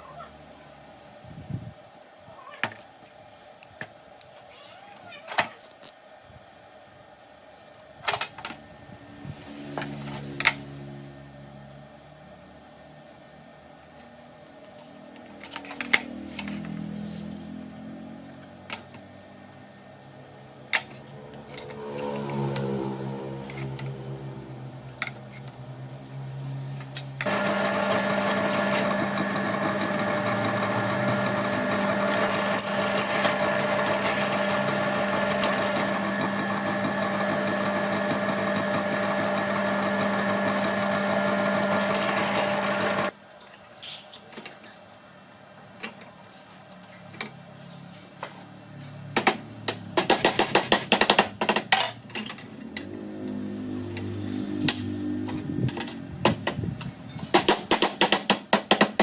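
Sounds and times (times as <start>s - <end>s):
power tool motor running: 27.2s - 43.1s.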